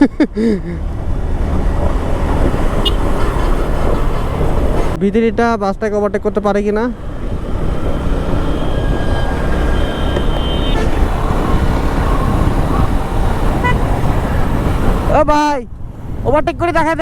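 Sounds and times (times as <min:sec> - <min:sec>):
bus and car traffic: 0:00.0 - 0:17.0
motorcycle engine and road noise: 0:00.0 - 0:17.0
faint vehicle horns: 0:02.8 - 0:05.0, 0:08.5 - 0:12.8, 0:13.6 - 0:14.0.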